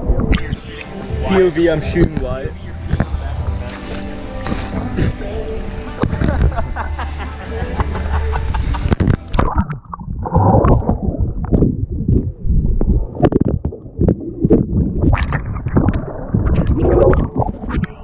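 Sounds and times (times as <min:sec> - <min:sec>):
water sloshing and gurgling: 0:01.8 - 0:05.2, 0:08.9 - 0:18.0.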